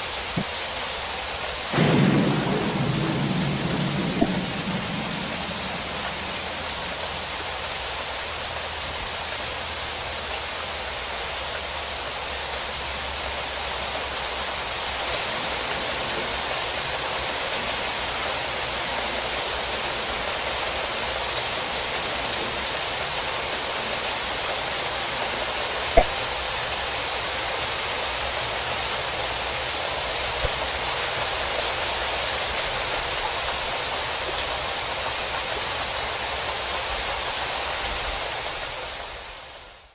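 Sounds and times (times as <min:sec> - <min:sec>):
heavy rain pouring: 0:00.0 - 0:39.9
sharp knock: 0:01.8 - 0:07.4, 0:26.0 - 0:26.2.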